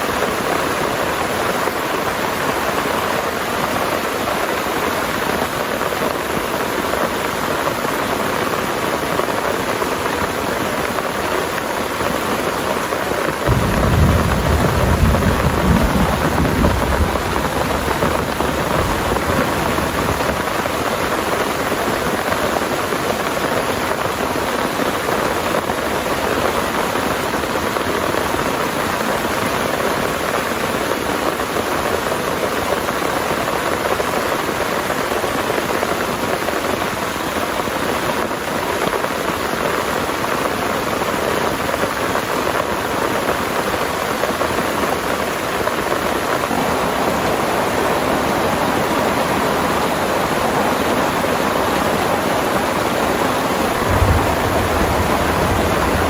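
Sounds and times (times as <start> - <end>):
heavy rain pouring: 0.0 - 56.0
thunder rumbling: 13.5 - 20.8, 53.6 - 56.0.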